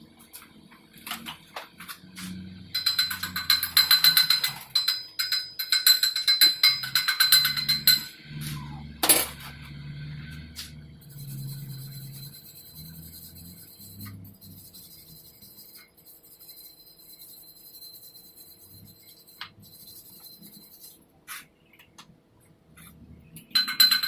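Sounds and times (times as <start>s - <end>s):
metallic crackling on steel pipe: 2.3s - 17.1s.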